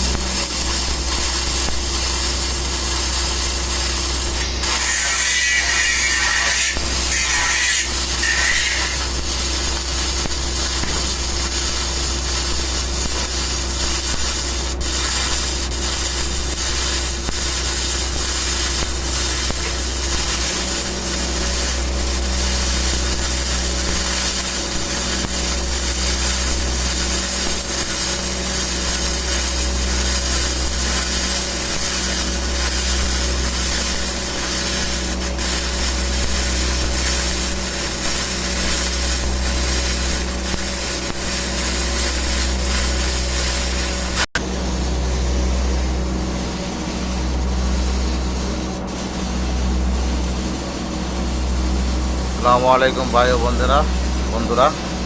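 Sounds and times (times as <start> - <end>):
low hum: 0.0 - 3.6
welding arc crackling and hissing: 0.0 - 55.0.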